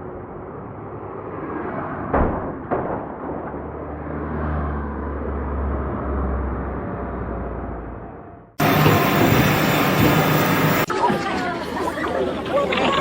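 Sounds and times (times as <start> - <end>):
steady noisy background: 8.6 - 13.0.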